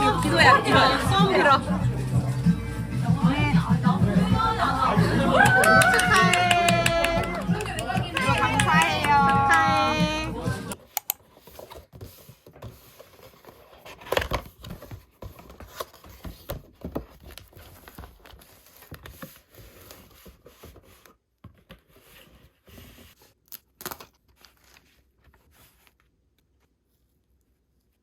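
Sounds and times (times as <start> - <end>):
packaging crinkling and tearing: 23.4 - 25.0.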